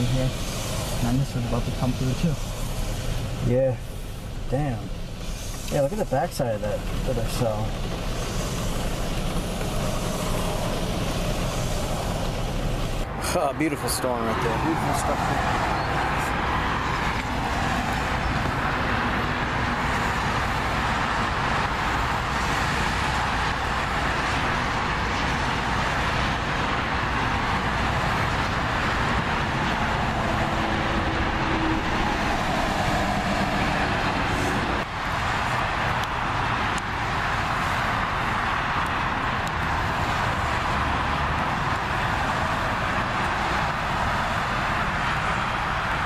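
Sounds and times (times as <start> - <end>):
road and engine noise inside car: 0.0 - 46.0.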